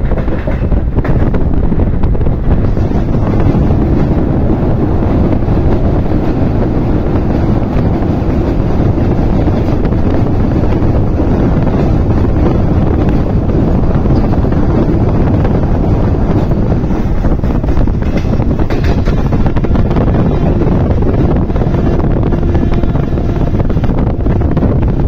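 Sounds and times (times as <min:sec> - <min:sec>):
train rolling noise: 0:00.0 - 0:25.0
wind buffeting microphone: 0:00.0 - 0:25.0.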